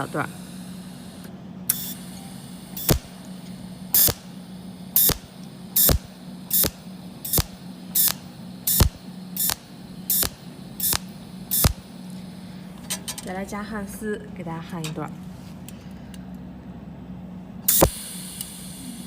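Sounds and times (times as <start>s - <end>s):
welding machine hum: 0.0s - 15.1s, 17.6s - 19.0s
welding pulses zapping: 2.7s - 11.9s, 17.7s - 18.0s.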